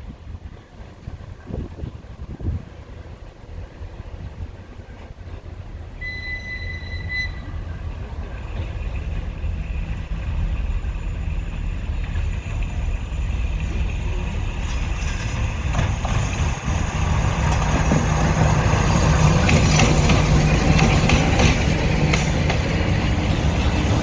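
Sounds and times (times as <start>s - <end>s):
locomotive engine rumble: 0.0s - 24.0s
high train whistle: 6.0s - 7.9s.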